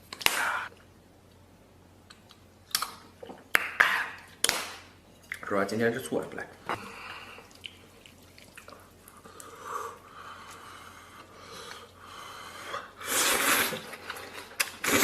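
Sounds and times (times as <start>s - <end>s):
noodles slurped: 13.0s - 15.0s.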